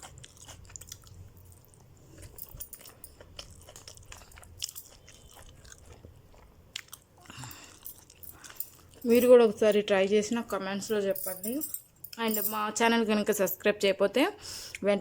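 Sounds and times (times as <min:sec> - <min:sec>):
person chewing food: 0:00.0 - 0:09.1.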